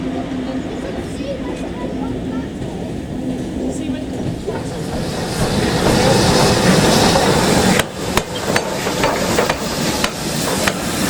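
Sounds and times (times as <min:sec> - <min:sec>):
train rumbling: 0:00.0 - 0:11.0
sharp metallic knocks: 0:07.1 - 0:10.9.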